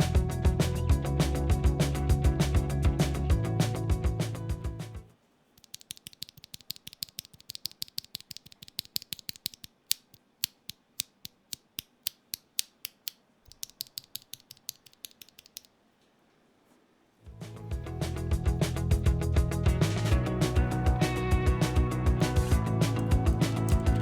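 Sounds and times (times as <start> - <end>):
mechanical keyboard clicking: 5.6 - 15.7.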